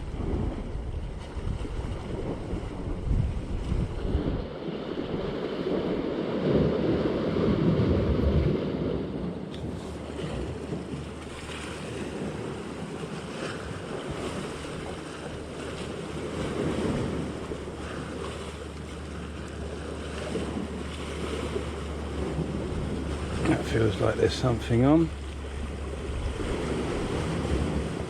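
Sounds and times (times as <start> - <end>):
waves washing on rocky shore: 0.0 - 28.0
wind on microphone: 0.0 - 28.0.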